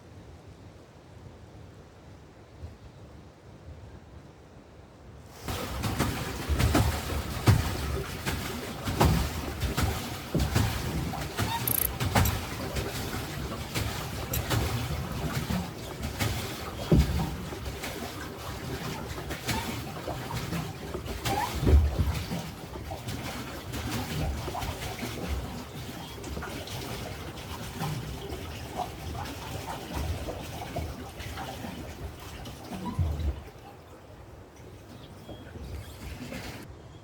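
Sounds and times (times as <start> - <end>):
water splashing and sloshing: 5.3 - 36.7.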